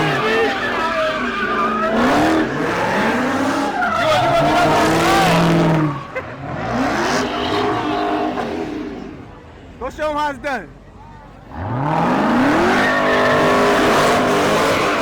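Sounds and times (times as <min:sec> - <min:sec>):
tires squealing: 0:00.0 - 0:09.3, 0:11.5 - 0:15.0
car engine revving hard: 0:01.8 - 0:09.1, 0:11.5 - 0:15.0.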